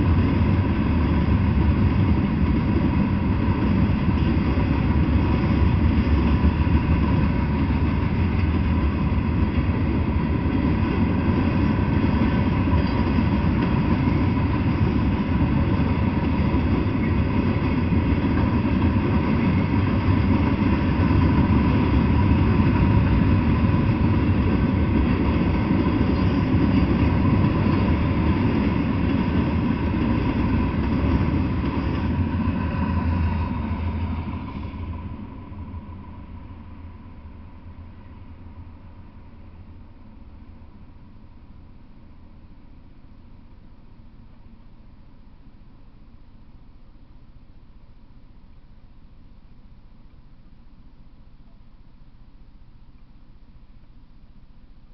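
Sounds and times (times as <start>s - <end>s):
train wheels rumbling on rails: 0.0s - 42.8s.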